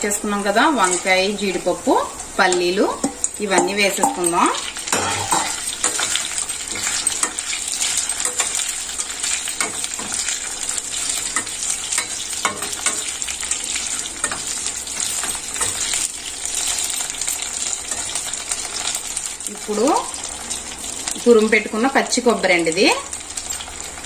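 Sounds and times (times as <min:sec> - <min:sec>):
food sizzling in hot oil: 0:00.0 - 0:24.0
metal spatula scraping a pan: 0:02.9 - 0:19.1.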